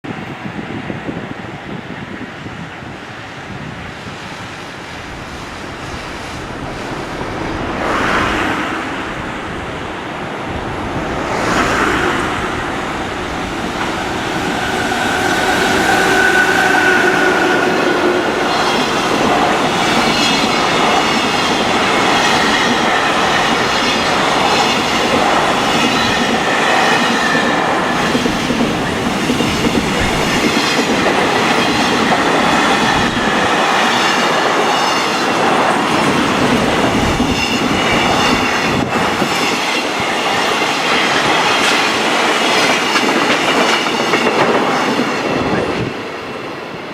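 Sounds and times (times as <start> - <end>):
locomotive passing: 3.6 - 46.9
high whining tones: 4.6 - 20.3.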